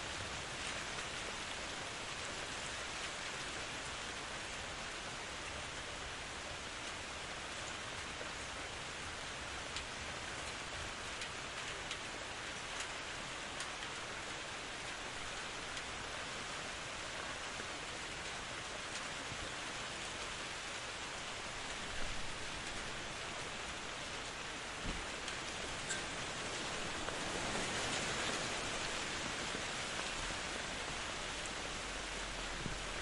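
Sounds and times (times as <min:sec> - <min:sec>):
steady rain hiss: 0:00.0 - 0:33.0
raindrops ticking: 0:09.6 - 0:16.8, 0:17.4 - 0:33.0.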